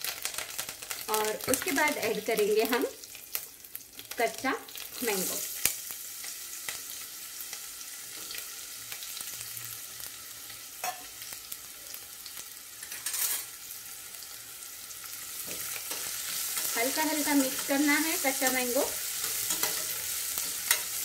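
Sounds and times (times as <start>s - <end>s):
sharp crackle: 0.0s - 6.9s
food sizzling in hot oil: 0.0s - 21.0s.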